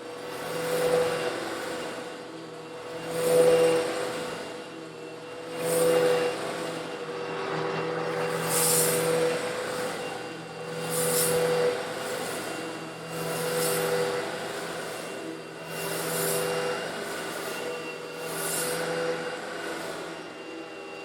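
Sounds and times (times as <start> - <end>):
vacuum cleaner motor hum: 0.0 - 21.0.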